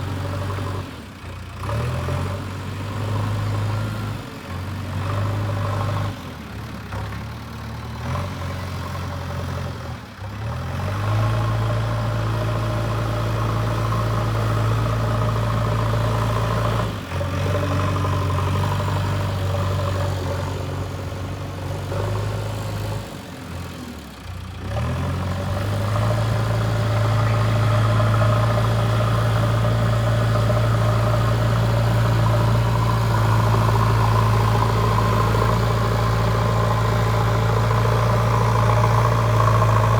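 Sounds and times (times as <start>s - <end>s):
diesel engine humming: 12.0s - 39.9s.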